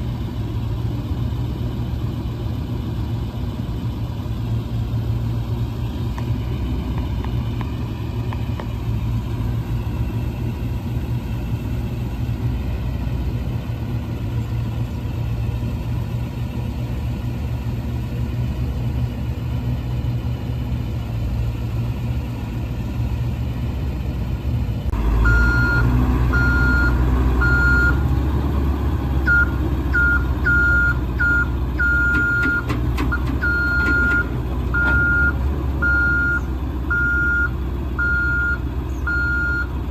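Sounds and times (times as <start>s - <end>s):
diesel truck engine running: 0.0s - 39.9s
backup alarm beeping: 25.2s - 28.0s, 29.3s - 39.7s.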